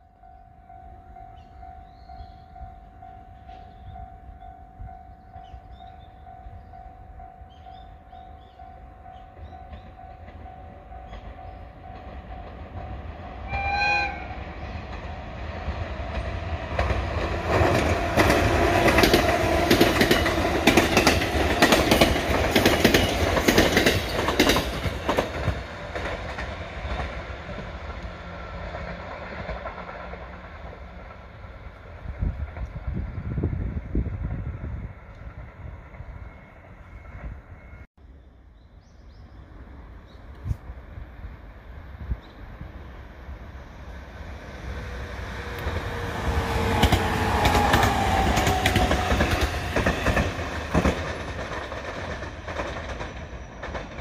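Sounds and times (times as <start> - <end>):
electric train passing: 0.0 - 37.9, 39.2 - 54.0
train horn blast: 13.3 - 15.3
wheels clattering over rail joints: 14.8 - 31.2, 45.0 - 54.0.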